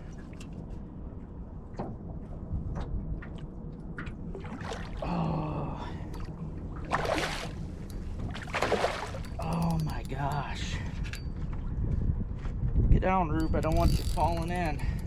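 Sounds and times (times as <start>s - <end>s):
steady low rumble: 0.0s - 15.0s
water splashing at boat side: 3.2s - 5.1s, 6.2s - 9.4s.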